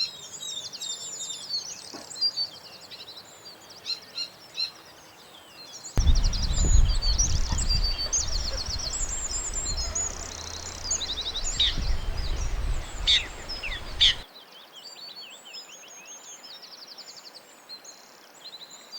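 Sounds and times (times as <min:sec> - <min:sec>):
loud low rumble: 0:06.0 - 0:14.2
songbirds chirping and trilling: 0:06.0 - 0:14.2.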